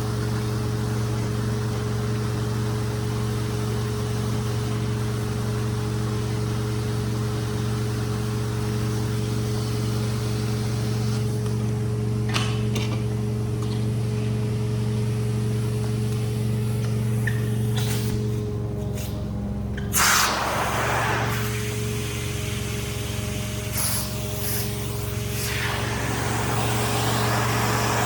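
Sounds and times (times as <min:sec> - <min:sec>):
cleaning machine motor humming: 0:14.0 - 0:28.0
hiss: 0:17.0 - 0:19.2, 0:19.9 - 0:28.0.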